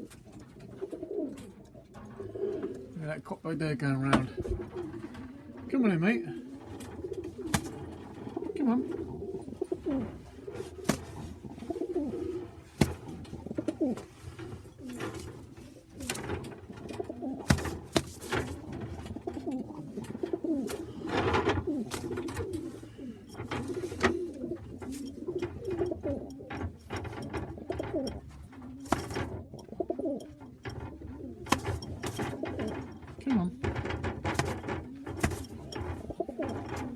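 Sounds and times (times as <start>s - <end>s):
pigeons cooing: 0.0s - 3.1s, 4.1s - 36.9s
sharp clicks and knocks: 6.7s - 8.4s, 12.8s - 22.6s, 23.3s - 36.9s.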